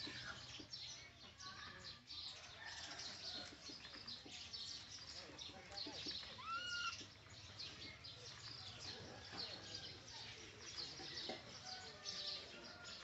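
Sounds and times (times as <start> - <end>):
small birds chirping: 0.0 - 13.0
faint lower bird calls: 6.2 - 7.1.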